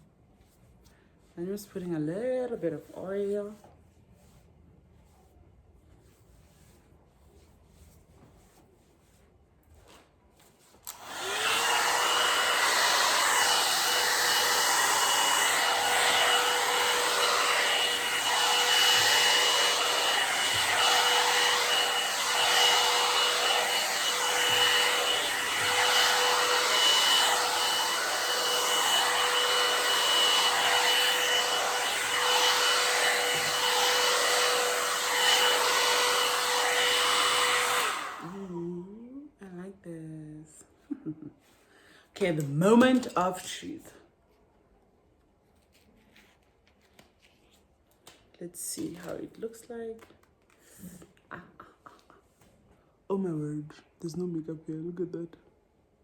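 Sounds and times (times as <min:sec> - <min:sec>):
hair dryer blowing: 0:10.8 - 0:38.6, 0:42.2 - 0:43.6.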